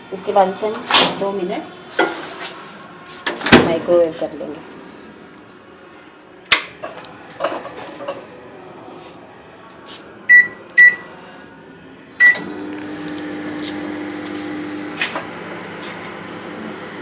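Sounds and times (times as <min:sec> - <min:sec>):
short keypad beeps: 0:10.3 - 0:11.0
microwave oven humming: 0:12.2 - 0:17.0.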